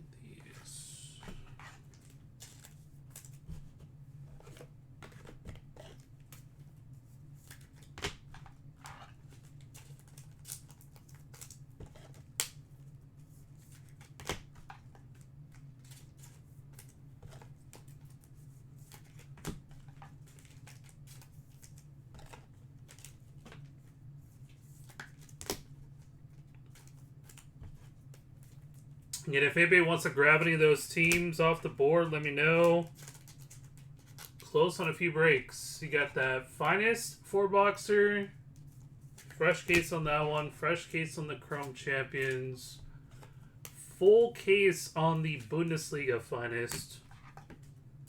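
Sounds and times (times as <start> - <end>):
steady low hum: 0.0 - 7.5, 21.3 - 48.0
cards rustling in plastic sleeves: 0.4 - 47.8.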